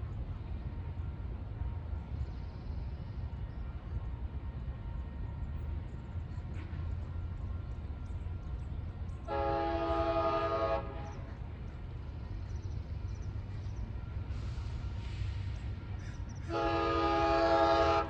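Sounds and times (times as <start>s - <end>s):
locomotive air horn blast: 9.3s - 11.2s, 16.5s - 18.0s.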